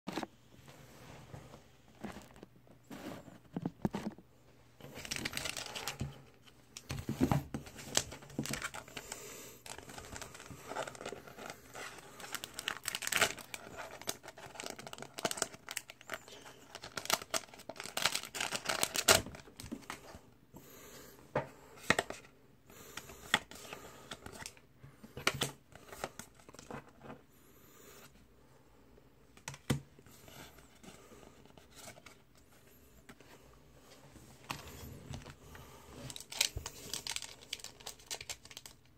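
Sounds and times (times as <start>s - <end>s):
packaging tearing and crinkling: 4.9s - 6.0s, 12.2s - 19.7s, 36.1s - 38.9s.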